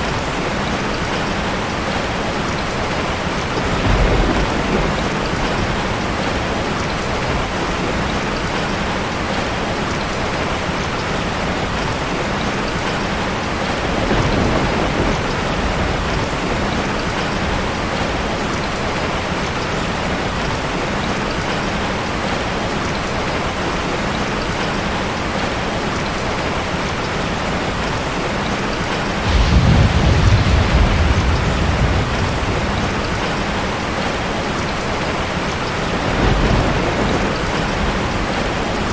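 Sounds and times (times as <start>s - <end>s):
heavy rain falling: 0.0s - 38.9s
low thunder rumble: 2.1s - 8.2s, 13.8s - 18.3s, 28.8s - 38.9s.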